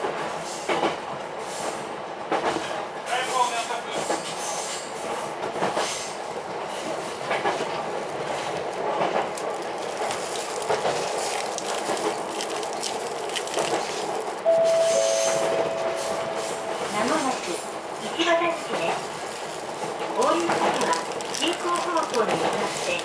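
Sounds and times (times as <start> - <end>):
train rail noise: 0.0 - 23.0
loud two-note tone: 14.5 - 17.7.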